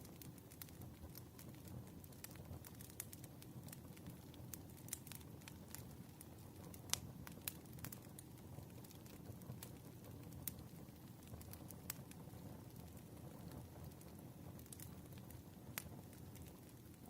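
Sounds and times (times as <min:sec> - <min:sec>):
firewood crackling and popping: 0:00.0 - 0:17.0
low fire rumble: 0:00.0 - 0:17.0.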